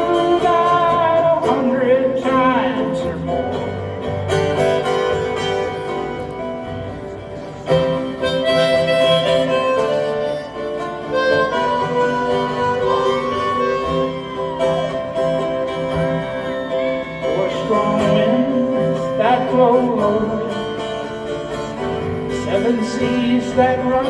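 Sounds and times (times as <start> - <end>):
strummed acoustic guitar: 0.0 - 24.0
harmonica playing: 7.7 - 17.6.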